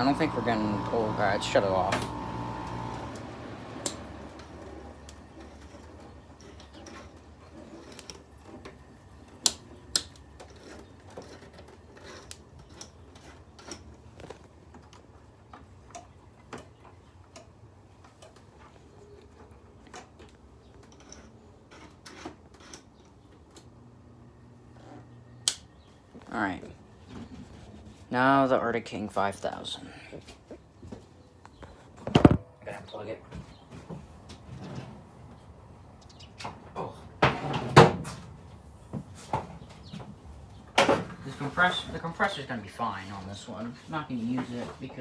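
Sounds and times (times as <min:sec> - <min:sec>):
air conditioner hum: 0:00.0 - 0:18.1, 0:31.8 - 0:45.0.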